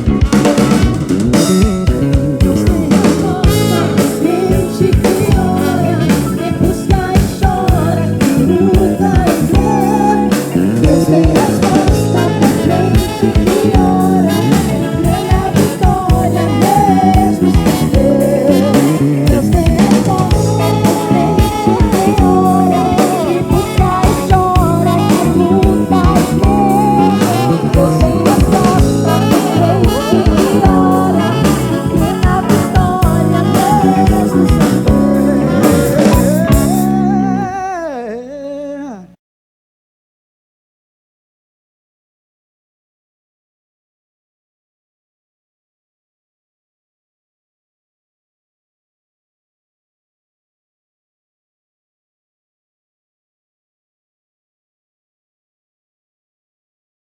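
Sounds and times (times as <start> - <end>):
wavering lead melody: 0.0 - 37.5
live band playing gospel music: 0.0 - 37.7
drum kit beat: 0.0 - 37.8.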